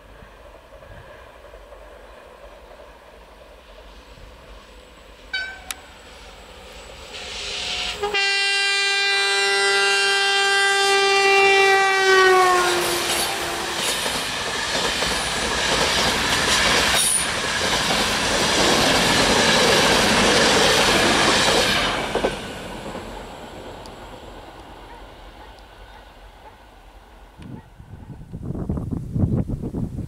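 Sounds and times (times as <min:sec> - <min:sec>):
train coaches clattering past: 0:00.0 - 0:09.2, 0:11.4 - 0:27.4
train horn blast: 0:05.3 - 0:06.1, 0:07.1 - 0:14.1.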